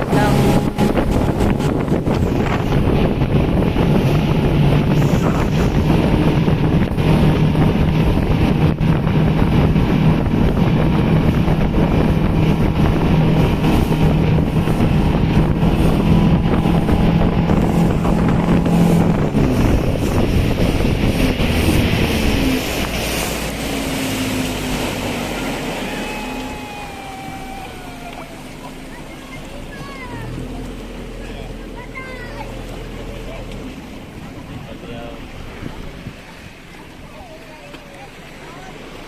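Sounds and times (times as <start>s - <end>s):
wind noise on microphone: 0.0s - 25.8s, 34.1s - 36.7s
motorboat engine running: 0.0s - 39.0s.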